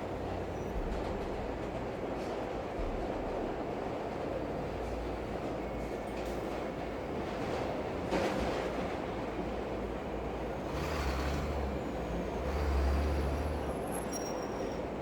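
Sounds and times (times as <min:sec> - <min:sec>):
passing train rumble: 0:00.0 - 0:15.0.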